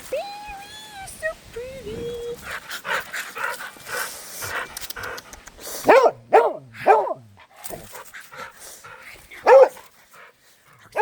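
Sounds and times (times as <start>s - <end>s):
dog barking: 5.9s - 7.2s, 9.4s - 9.8s.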